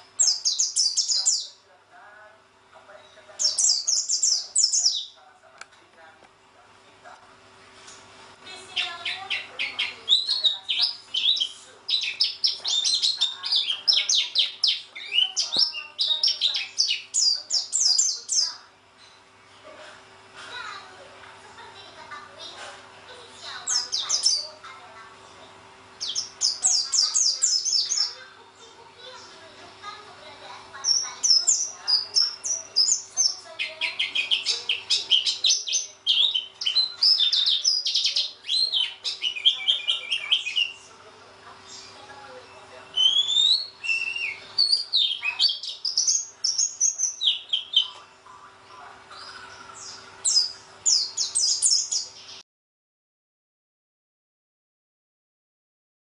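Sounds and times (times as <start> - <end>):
bird chirping rapidly: 0.0 - 1.6, 3.4 - 5.2, 8.7 - 18.6, 23.4 - 24.6, 26.0 - 28.2, 30.8 - 40.8, 42.8 - 48.0, 49.2 - 52.4.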